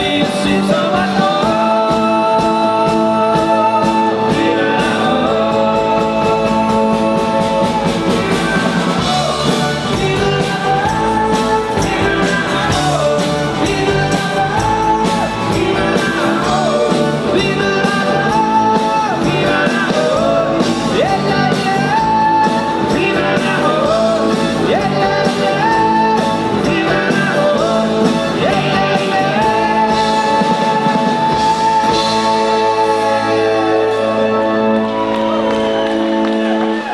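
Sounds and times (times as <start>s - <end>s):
lead singer singing: 0.0s - 36.9s
pop-rock band playing: 0.0s - 36.9s.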